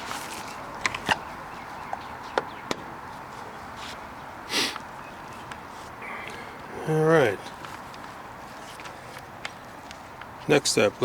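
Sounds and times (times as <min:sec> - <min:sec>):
short rustling hiss: 0:03.8 - 0:04.9.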